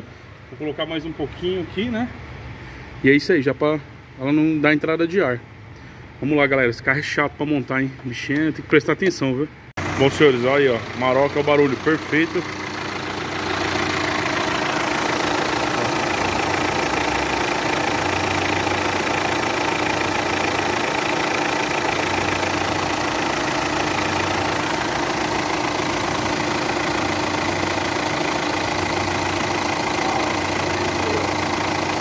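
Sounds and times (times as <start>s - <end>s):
diesel engine idling: 9.8s - 32.0s.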